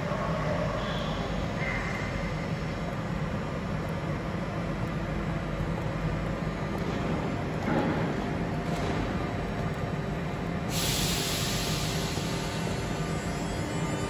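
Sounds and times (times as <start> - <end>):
high-pitched train squeals: 0.0 - 2.3, 11.2 - 14.0
electric train low hum: 0.0 - 14.0.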